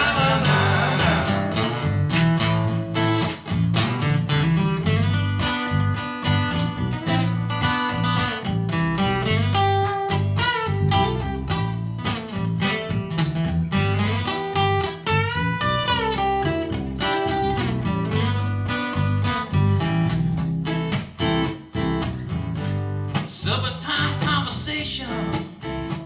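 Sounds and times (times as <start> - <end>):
lead guitar bending notes: 0.0 - 2.8
bass line: 0.0 - 3.1
strummed acoustic guitar: 0.0 - 26.0.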